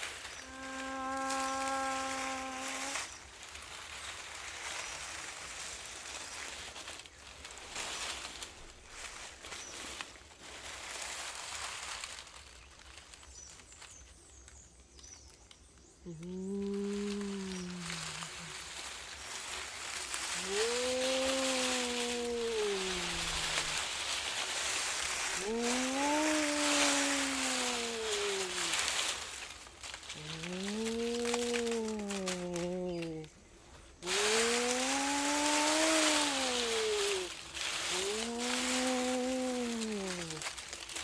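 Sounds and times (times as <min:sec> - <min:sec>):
faint hiss: 0:00.0 - 0:41.0.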